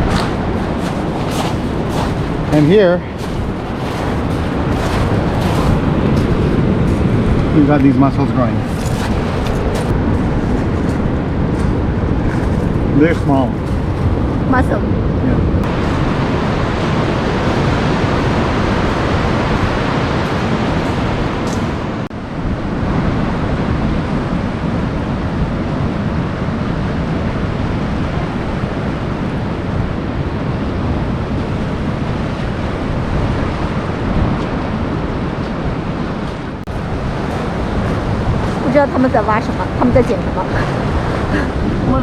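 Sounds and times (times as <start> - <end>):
ocean surf: 0.0 - 42.0
wind noise on microphone: 0.0 - 42.0.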